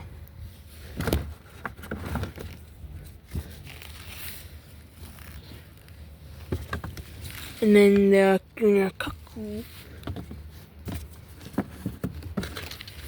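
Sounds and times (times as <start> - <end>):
cardboard rustling: 0.8 - 8.2, 9.4 - 13.0
plastic wrap crinkling: 3.5 - 6.1.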